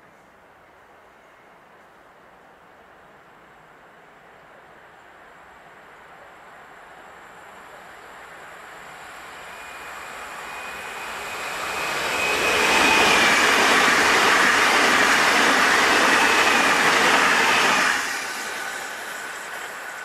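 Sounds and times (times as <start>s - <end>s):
electric train passing at speed: 3.4s - 20.0s
thin high whine: 7.4s - 20.0s.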